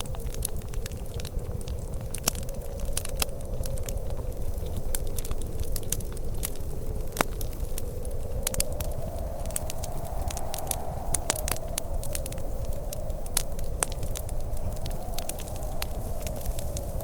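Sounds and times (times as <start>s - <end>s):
wood fire crackling and popping: 0.0s - 17.0s
low rushing background noise: 7.5s - 17.0s.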